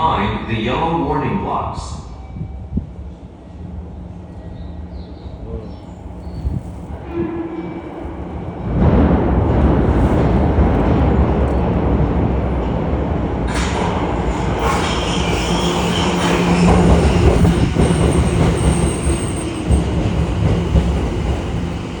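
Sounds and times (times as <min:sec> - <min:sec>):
subway train wheels rumbling: 0:00.0 - 0:22.0
train brakes squealing: 0:13.6 - 0:20.9.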